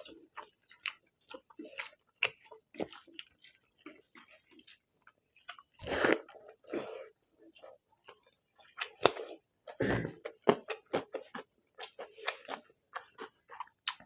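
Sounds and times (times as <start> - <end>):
wet chewing and lip smacks: 0.0 - 6.7, 7.6 - 14.0.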